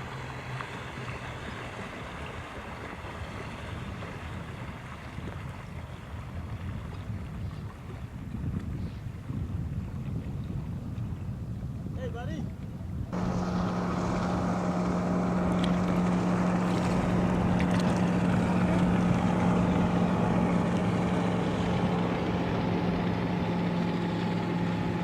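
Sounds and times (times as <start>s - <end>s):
motorboat engine running: 0.0s - 25.0s
wind and water rushing: 0.0s - 25.0s.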